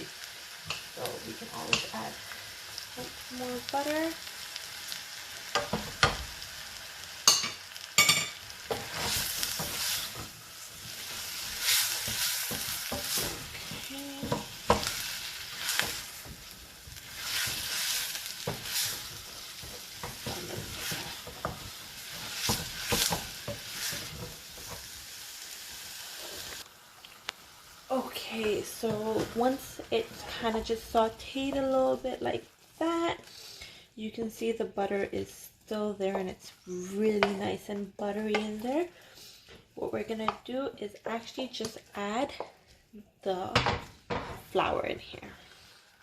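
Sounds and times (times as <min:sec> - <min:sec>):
vegetables sizzling in a pan: 0:00.0 - 0:46.0
utensil scraping a pan: 0:08.7 - 0:24.9.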